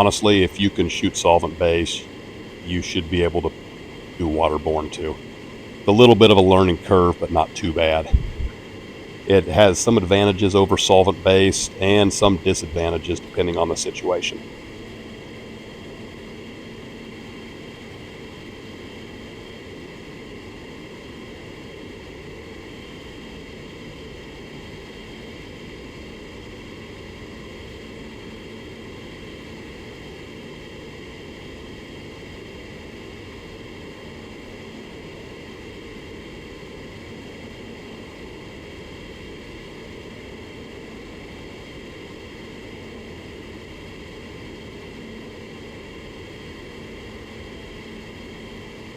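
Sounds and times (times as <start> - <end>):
faint low hum: 0.0 - 14.9.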